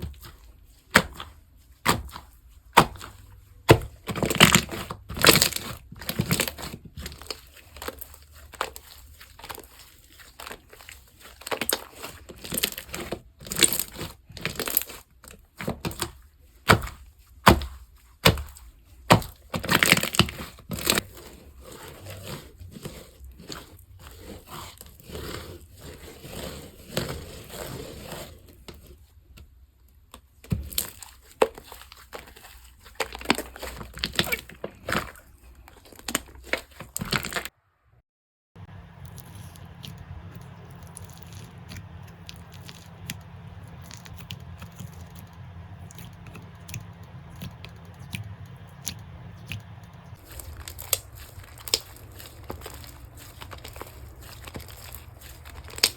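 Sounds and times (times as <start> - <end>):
slime crackling and popping: 38.6 - 55.9.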